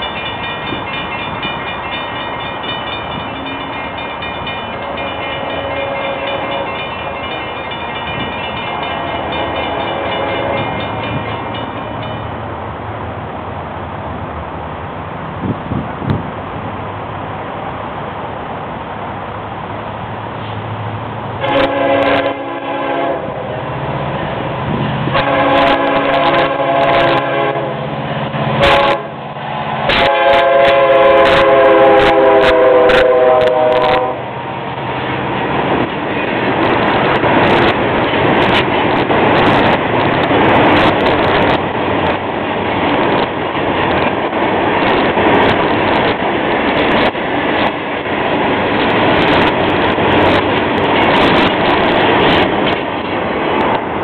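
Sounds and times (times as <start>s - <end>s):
wheels clicking over rail joints: 0.0s - 12.5s, 34.6s - 54.0s
freight cars rumbling: 0.0s - 54.0s
train air horn: 4.8s - 6.7s, 8.8s - 10.8s, 21.4s - 23.6s, 25.1s - 27.8s, 28.6s - 29.2s, 29.9s - 34.3s.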